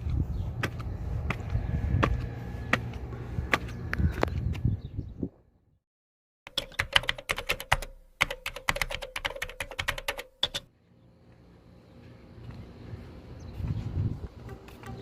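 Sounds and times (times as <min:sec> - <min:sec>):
rapid sharp clicks: 0:06.5 - 0:10.7.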